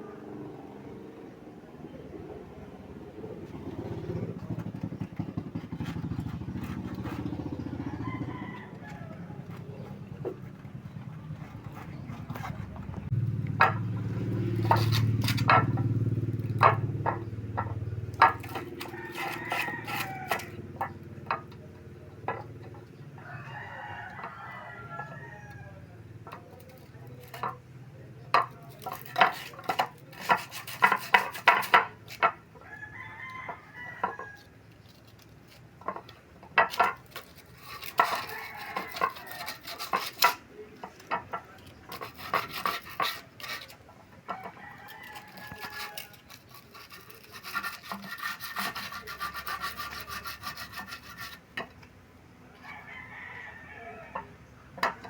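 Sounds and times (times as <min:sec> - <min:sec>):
rooster crowing: 0:07.5 - 0:10.0, 0:18.5 - 0:20.8, 0:23.2 - 0:26.0, 0:32.6 - 0:34.6, 0:38.0 - 0:39.9, 0:44.3 - 0:46.3, 0:52.5 - 0:54.5.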